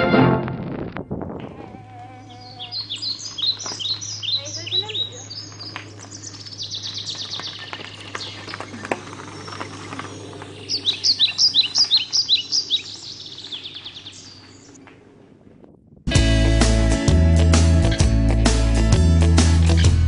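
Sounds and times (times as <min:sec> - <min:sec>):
songbirds singing: 0:01.7 - 0:14.8.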